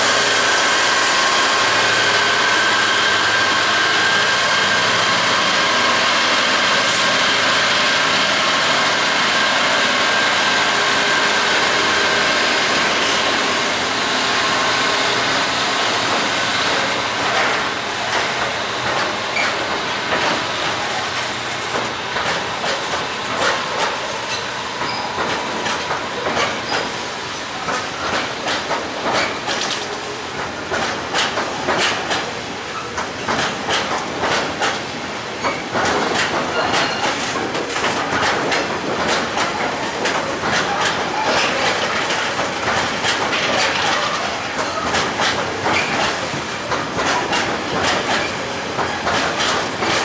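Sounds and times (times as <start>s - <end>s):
train engine hum: 0.0s - 50.0s
train wheels clicking over rail joints: 15.3s - 50.0s.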